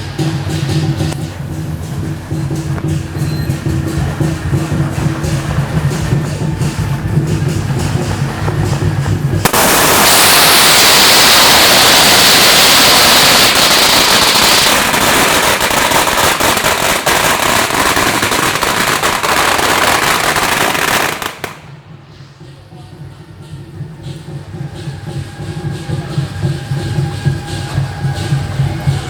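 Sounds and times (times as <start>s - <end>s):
firecrackers crackling: 0.0s - 23.0s.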